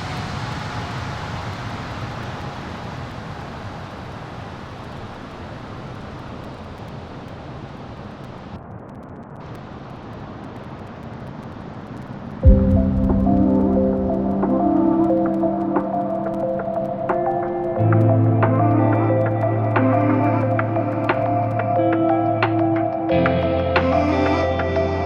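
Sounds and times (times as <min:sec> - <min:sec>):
jet engines at takeoff power: 0:00.0 - 0:08.5
music: 0:12.4 - 0:25.0.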